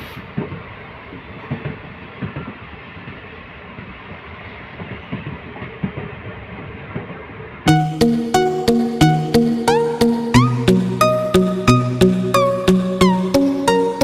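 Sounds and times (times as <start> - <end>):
train rumble: 0.0 - 7.7
train wheels clacking over rail joints: 0.2 - 4.2.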